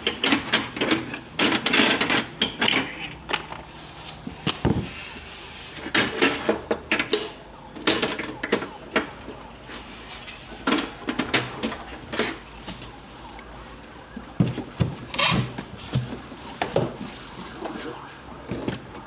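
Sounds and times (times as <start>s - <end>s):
objects rustling and knocking: 0.0s - 19.0s.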